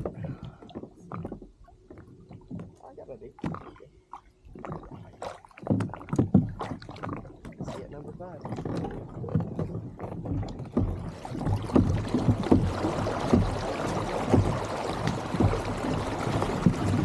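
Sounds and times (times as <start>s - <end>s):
water slapping against kayak hull: 0.0s - 17.0s.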